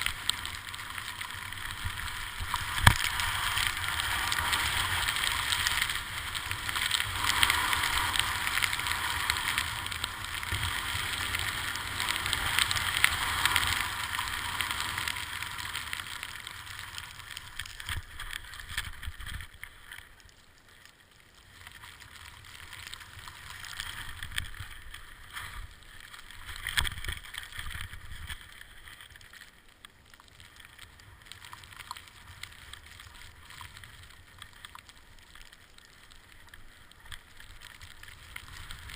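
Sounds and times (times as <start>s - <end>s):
wind rumbling on microphone: 0.0s - 19.7s, 36.8s - 38.9s
skis scraping over snow: 0.0s - 20.0s, 21.4s - 29.4s, 30.4s - 38.9s.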